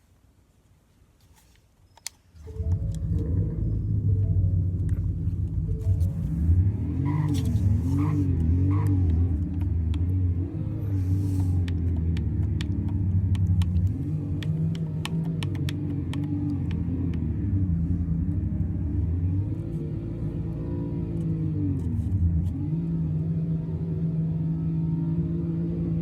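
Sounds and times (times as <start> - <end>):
truck engine rumbling: 2.4 - 25.9
sharp clicks: 11.3 - 17.3.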